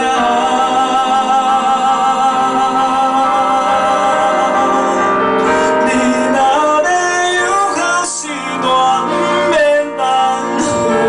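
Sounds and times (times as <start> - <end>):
ballad backing track: 0.0 - 11.0
man singing with vibrato: 0.0 - 11.0.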